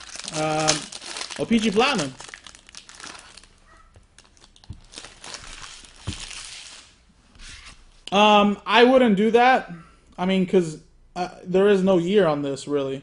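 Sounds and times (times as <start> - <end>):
cards rustling: 0.0 - 3.5, 4.2 - 6.9
foil wrapper crinkling: 0.0 - 7.0.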